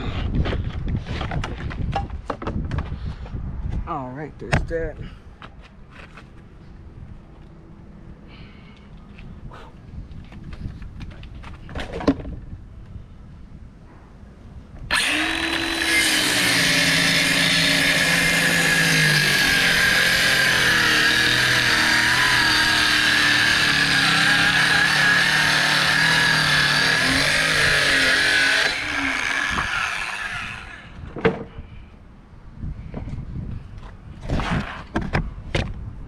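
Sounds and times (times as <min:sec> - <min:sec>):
electric power tool motor: 0:14.9 - 0:31.0.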